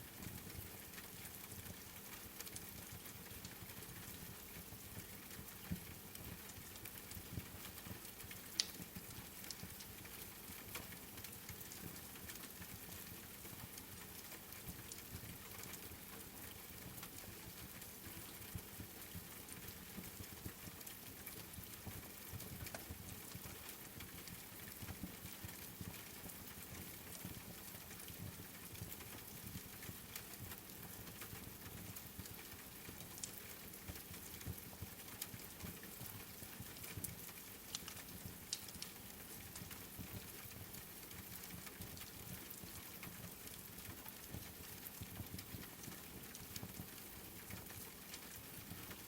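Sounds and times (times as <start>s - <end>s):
rain patter: 0.0s - 49.0s
wood fire crackling: 8.5s - 10.2s, 32.2s - 42.8s.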